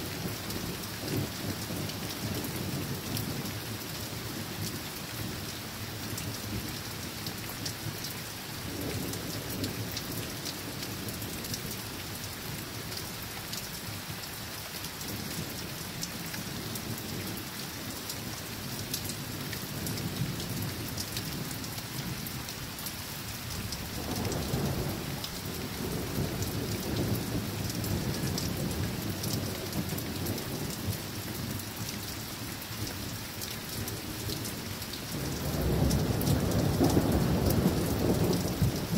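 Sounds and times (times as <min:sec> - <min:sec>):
rain pattering: 0:00.0 - 0:38.9
distant thunder rumbling: 0:35.1 - 0:38.9.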